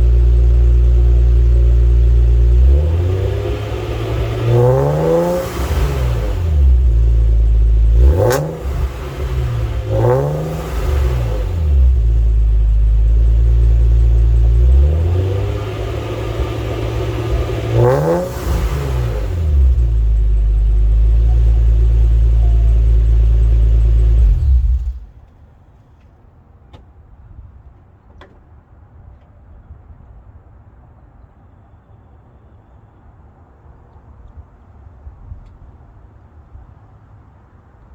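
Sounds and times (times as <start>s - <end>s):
car engine revving: 0.0s - 25.2s.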